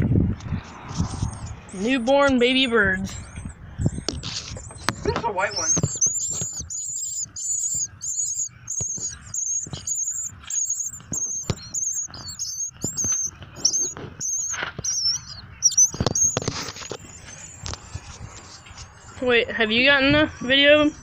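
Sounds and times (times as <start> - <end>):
small birds chirping: 0.4 - 21.0.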